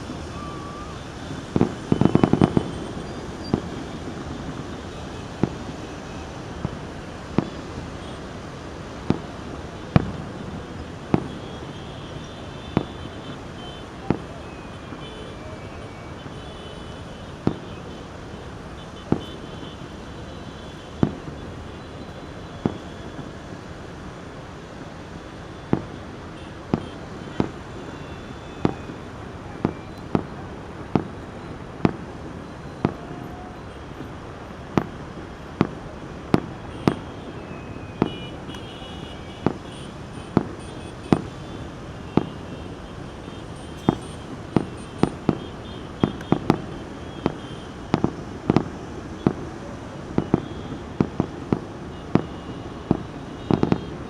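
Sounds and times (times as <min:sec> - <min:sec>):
fireworks exploding: 0:00.0 - 0:23.4, 0:25.4 - 0:54.0
steady background noise: 0:00.0 - 0:54.0.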